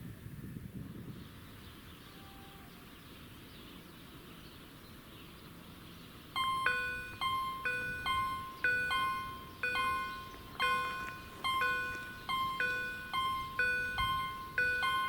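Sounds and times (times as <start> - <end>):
faint steady rumble: 0.0 - 15.0
level crossing warning bells: 6.3 - 15.0.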